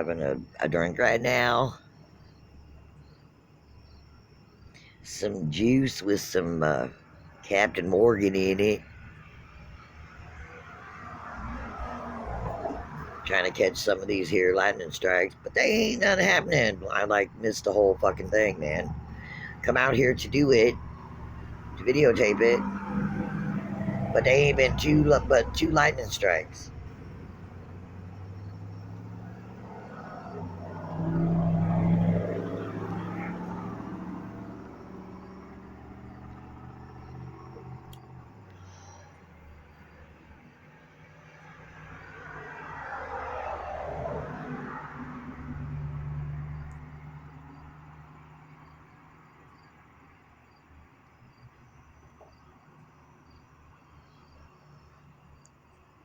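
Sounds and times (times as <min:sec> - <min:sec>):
faint insect chirping: 0:00.0 - 0:56.0.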